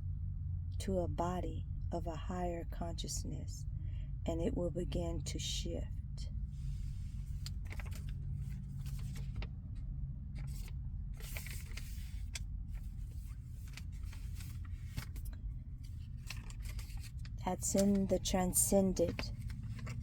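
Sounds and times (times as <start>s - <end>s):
steady low hum: 0.0s - 20.0s
rustles and clicks: 6.6s - 9.5s, 10.4s - 20.0s.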